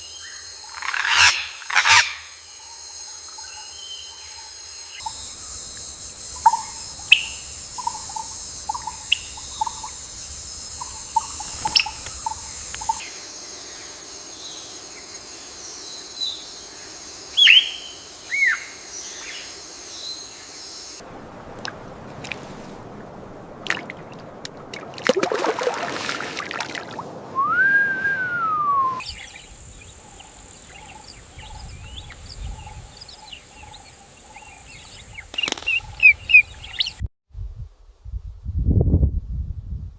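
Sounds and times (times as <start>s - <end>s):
steady high hum: 5.0s - 14.6s
long rising and falling whistle: 27.3s - 29.1s.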